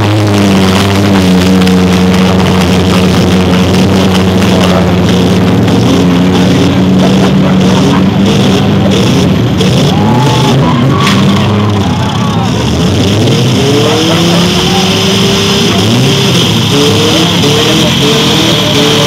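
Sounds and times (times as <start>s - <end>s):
car engines droning at high revs: 0.0s - 19.0s
loud rock music: 0.0s - 19.0s.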